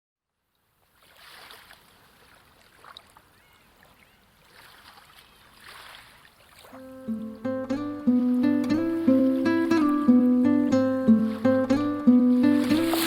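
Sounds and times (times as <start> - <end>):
waves washing in: 4.4 - 13.0.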